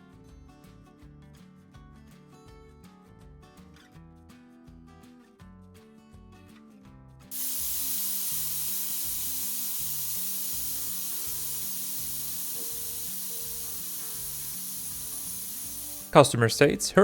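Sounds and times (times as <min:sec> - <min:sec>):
loud spraying hiss: 0:07.3 - 0:16.2.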